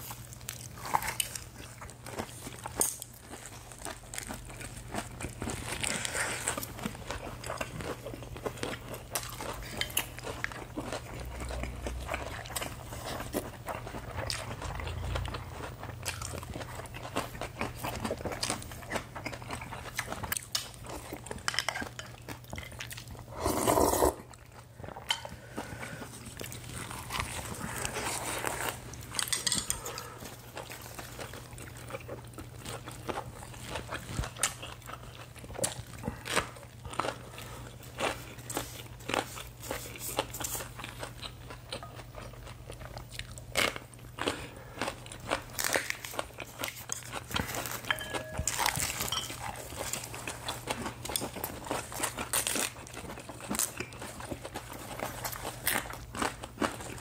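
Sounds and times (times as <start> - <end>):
chewing and crunching lettuce: 0.0 - 57.0
wet mouth sounds: 23.3 - 24.4.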